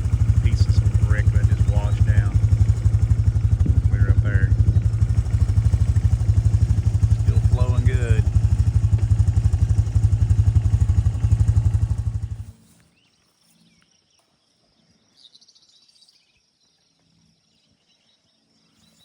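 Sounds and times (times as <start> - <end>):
small engine idling: 0.0 - 12.7
bird chirping: 0.0 - 19.0
insects humming: 0.0 - 19.0.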